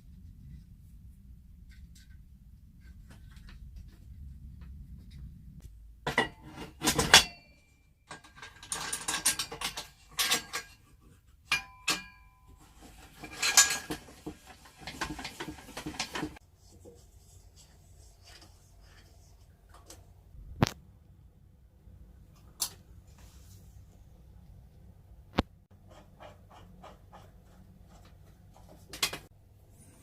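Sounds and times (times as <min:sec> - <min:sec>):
metal parts clinking and rattling: 0:06.1 - 0:10.9, 0:11.5 - 0:16.3.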